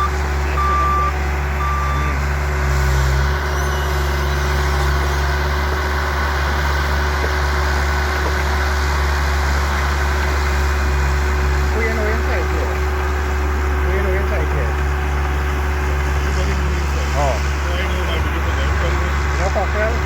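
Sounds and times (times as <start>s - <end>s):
reversing alarm beeping: 0.0s - 2.2s, 3.4s - 5.5s
loader engine running: 0.0s - 20.0s.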